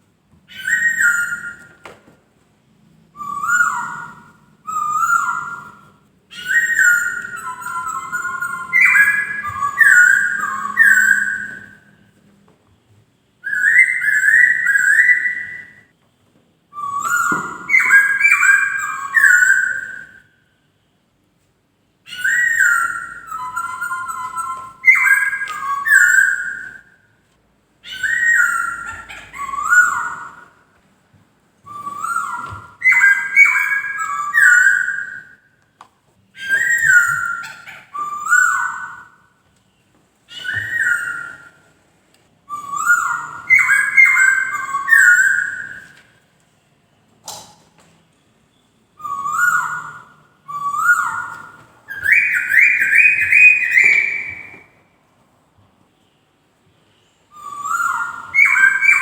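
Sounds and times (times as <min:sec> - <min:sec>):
laughingthrush whistled song: 0:00.5 - 0:01.8, 0:03.2 - 0:12.0, 0:13.4 - 0:15.9, 0:16.8 - 0:20.6, 0:22.1 - 0:26.9, 0:27.8 - 0:30.7, 0:31.7 - 0:35.4, 0:36.4 - 0:39.2, 0:40.3 - 0:41.7, 0:42.5 - 0:46.0, 0:48.9 - 0:54.8, 0:57.0 - 0:59.0.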